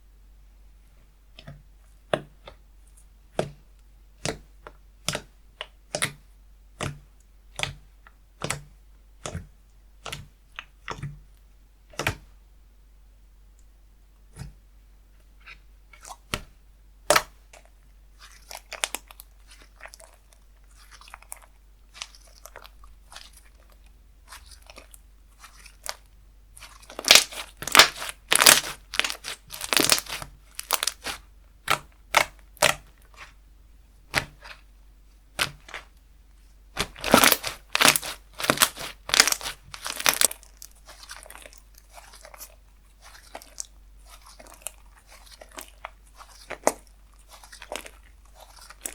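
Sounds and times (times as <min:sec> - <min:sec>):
dense crunching of slime: 0:15.4 - 0:33.4, 0:34.0 - 0:36.0, 0:36.6 - 0:48.9
slime clicking and crackling: 0:17.1 - 0:33.4, 0:35.3 - 0:35.9, 0:36.8 - 0:48.9.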